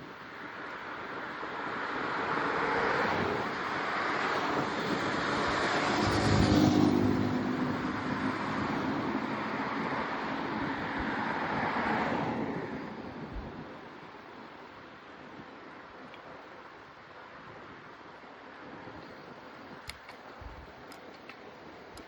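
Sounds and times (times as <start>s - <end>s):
wind noise on microphone: 0.0s - 22.0s
car passing by: 1.6s - 13.2s.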